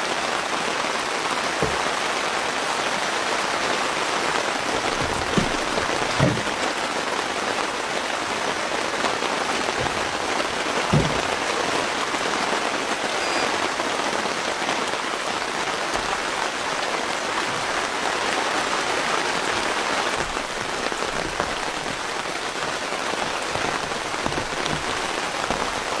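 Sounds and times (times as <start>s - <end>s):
rain pattering: 0.0s - 26.0s
low thuds: 4.5s - 7.0s, 9.6s - 11.7s, 19.6s - 26.0s.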